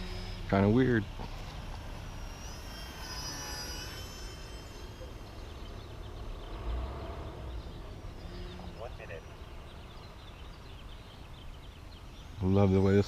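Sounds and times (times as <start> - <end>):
model airplane motor whine: 0.0 - 9.3.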